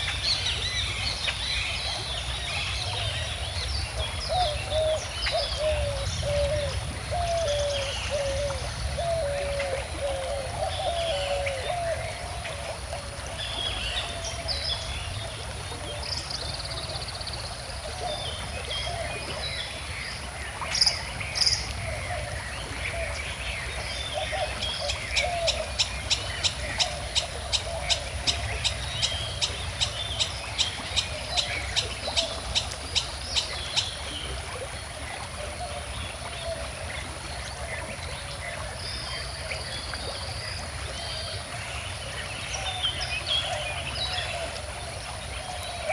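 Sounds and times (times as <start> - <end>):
birds singing and chirping: 0.0 - 12.3
stream flowing: 0.0 - 45.9.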